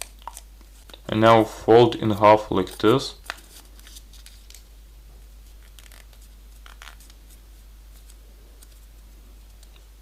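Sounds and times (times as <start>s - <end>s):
paper rustling and crackling: 2.6s - 4.7s, 5.4s - 9.7s.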